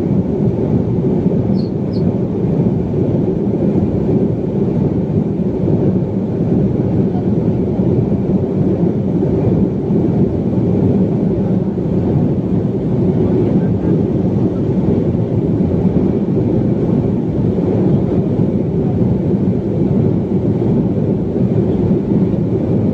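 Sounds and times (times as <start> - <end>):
jet engines roaring: 0.0 - 22.9
faint high chirps: 1.6 - 2.0.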